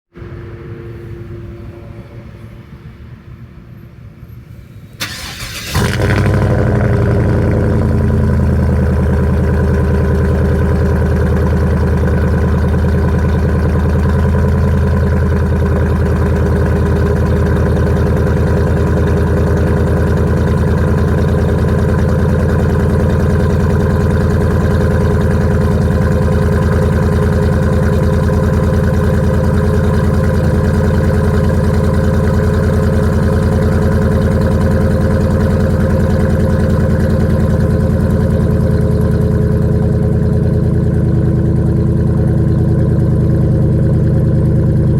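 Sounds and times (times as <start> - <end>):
engine cranking: 5.0 - 15.2
engine idling loudly: 5.0 - 44.9.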